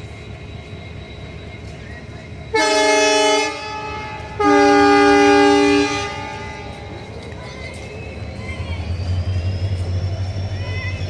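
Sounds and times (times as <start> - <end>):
moving train rumble: 0.0 - 11.0
train horn blasts: 2.5 - 6.9.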